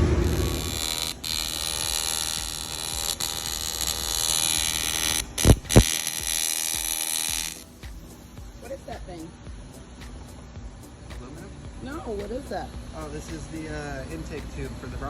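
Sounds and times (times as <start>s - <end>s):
low thumps: 0.0s - 1.1s
welding arc buzzing: 0.0s - 9.0s.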